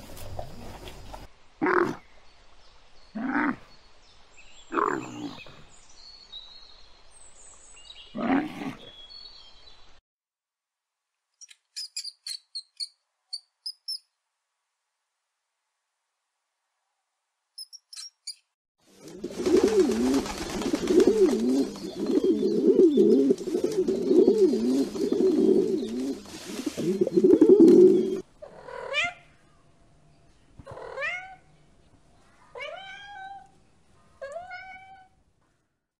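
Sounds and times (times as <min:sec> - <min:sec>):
background hiss: 0:00.0 - 0:08.0, 0:19.0 - 0:28.5
pigeons cooing: 0:19.0 - 0:28.9
cat meowing: 0:32.6 - 0:33.5.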